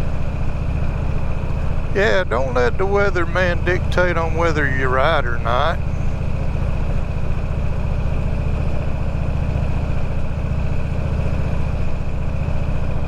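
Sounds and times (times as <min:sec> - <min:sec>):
faint high whine: 0:01.7 - 0:06.3.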